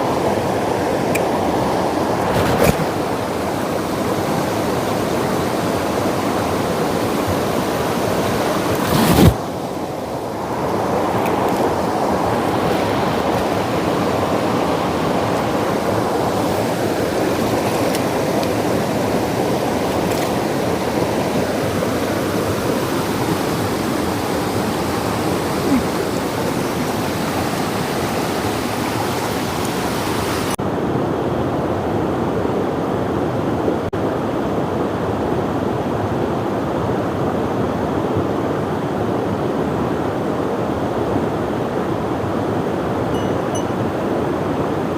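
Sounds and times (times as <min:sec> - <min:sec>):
stream rushing over rocks: 0:00.0 - 0:30.6.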